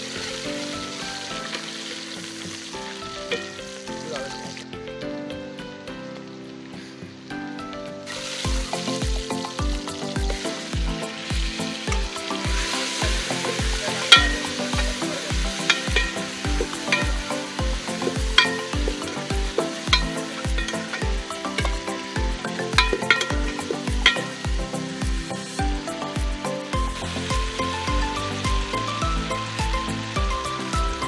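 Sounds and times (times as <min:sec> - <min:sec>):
food sizzling in a pot: 0:00.0 - 0:04.9, 0:05.6 - 0:31.0
background music with beat: 0:00.0 - 0:31.0
ladle clinking against pot: 0:14.1 - 0:14.9, 0:15.6 - 0:17.4, 0:18.4 - 0:19.0, 0:19.9 - 0:21.8, 0:22.8 - 0:24.4.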